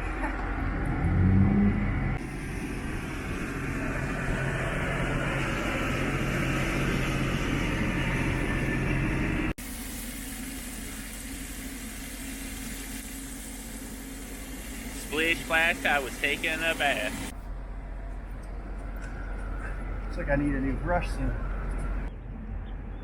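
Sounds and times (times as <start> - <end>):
vehicle engine running: 0.0 - 22.2
hiss: 9.6 - 17.3.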